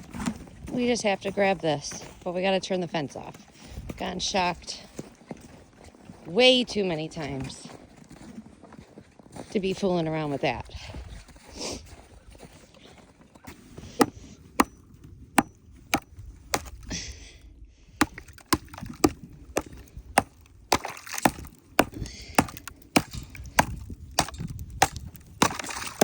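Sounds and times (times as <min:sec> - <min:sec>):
hand tool chopping ice: 0:13.9 - 0:14.8, 0:15.4 - 0:16.8, 0:18.0 - 0:26.0.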